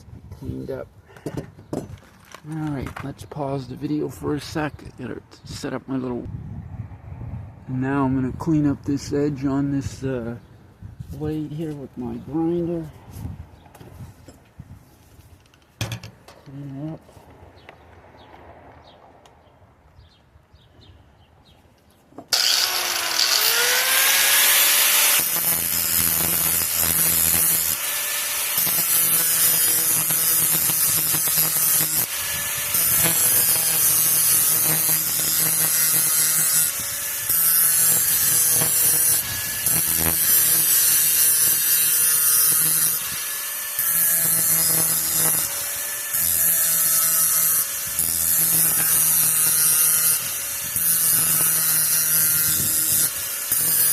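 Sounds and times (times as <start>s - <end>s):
electric grinder grinding metal: 22.3s - 53.9s.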